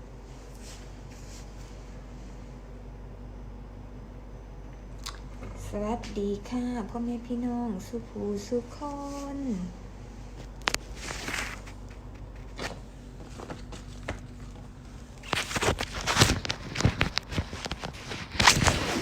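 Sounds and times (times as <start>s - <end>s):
rustling: 10.7s - 14.1s.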